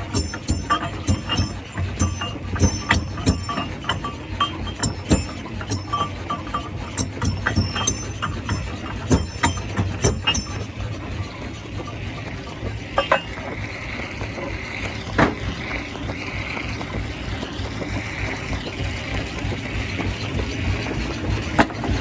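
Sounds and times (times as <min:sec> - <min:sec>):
rocks clanking against metal: 0:00.0 - 0:16.2
stone crusher humming: 0:00.0 - 0:22.0.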